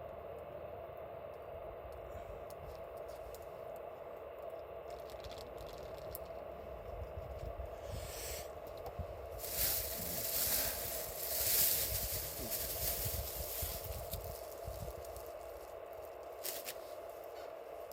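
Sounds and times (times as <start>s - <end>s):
campfire crackling: 1.0s - 7.5s, 8.6s - 17.9s
rustling: 9.3s - 17.6s.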